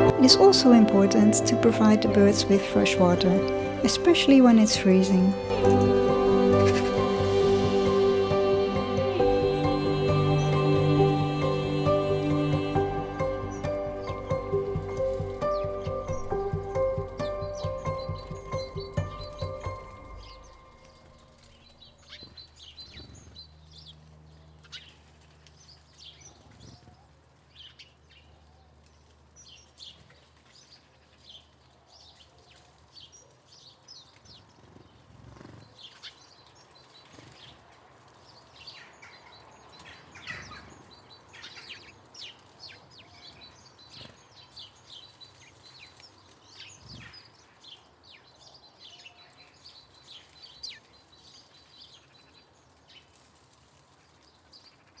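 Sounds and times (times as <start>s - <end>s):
small birds chirping: 0.0s - 24.0s, 38.2s - 52.3s.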